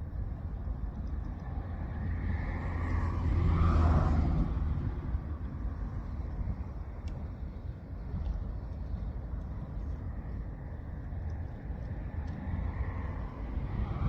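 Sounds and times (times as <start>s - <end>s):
motor vehicle passing by: 2.3s - 5.2s.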